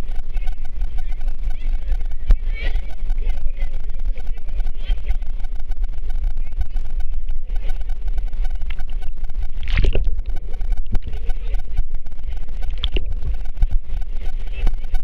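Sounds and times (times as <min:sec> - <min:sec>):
water sloshing with low rumble: 0:08.4 - 0:14.7.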